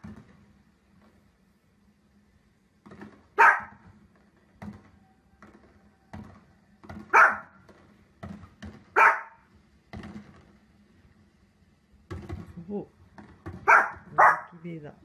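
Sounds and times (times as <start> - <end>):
dog barking: 3.4 - 3.8, 7.1 - 7.6, 8.9 - 9.4, 13.6 - 14.6.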